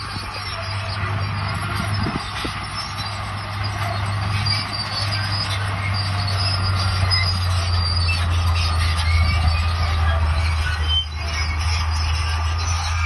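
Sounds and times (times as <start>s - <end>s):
diesel engine running: 0.0s - 13.0s
high-pitched squeal: 0.0s - 13.0s
steel tracks clanking: 0.0s - 13.0s.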